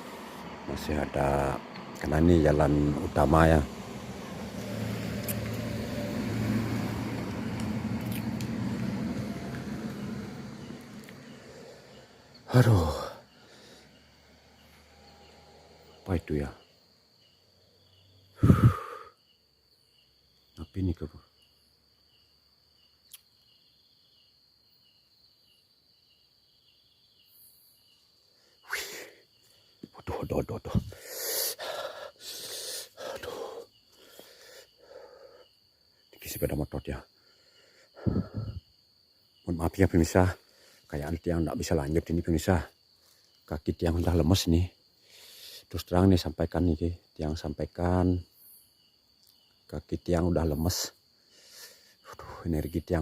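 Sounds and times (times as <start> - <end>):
vehicle passing on road: 0.0 - 18.7
night insects trilling: 0.0 - 53.0.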